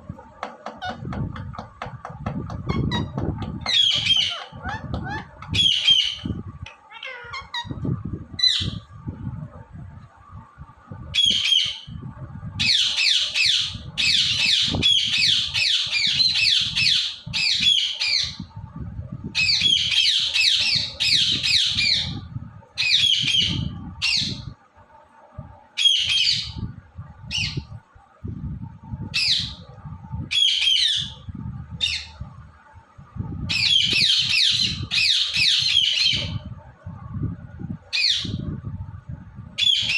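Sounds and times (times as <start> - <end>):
parakeet squawking: 0.6 - 1.2, 2.5 - 7.8.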